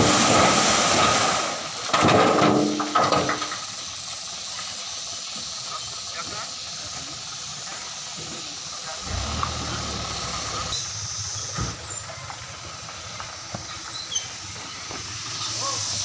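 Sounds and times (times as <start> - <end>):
outdoor hiss: 0.0 - 16.0
low engine hum: 6.8 - 16.0.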